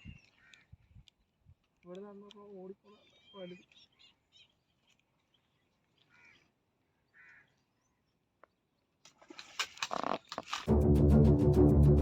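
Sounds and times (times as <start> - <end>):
crows cawing faintly: 0.2 - 0.8, 6.0 - 8.0.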